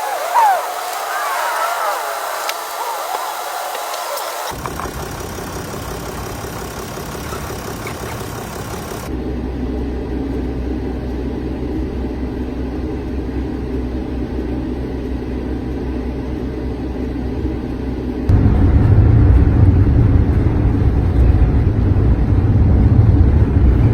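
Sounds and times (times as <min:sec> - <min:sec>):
van engine hum: 0:00.0 - 0:23.9
loud low rumble: 0:18.3 - 0:23.9.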